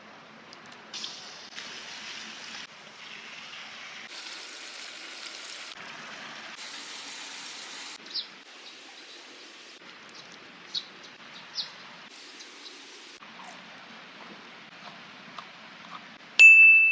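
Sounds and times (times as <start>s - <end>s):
steady outdoor hiss: 4.1s - 16.6s.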